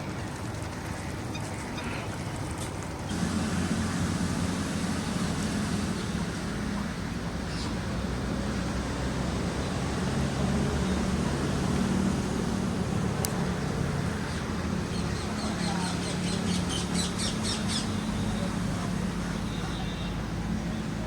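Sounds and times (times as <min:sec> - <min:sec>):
motor humming: 0:03.1 - 0:19.2.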